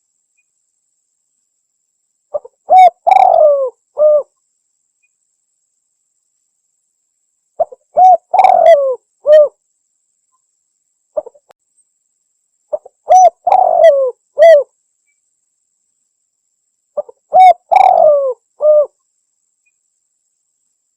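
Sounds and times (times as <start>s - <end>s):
dove cooing: 2.3s - 4.3s, 7.6s - 9.6s, 12.7s - 14.7s, 17.0s - 19.0s.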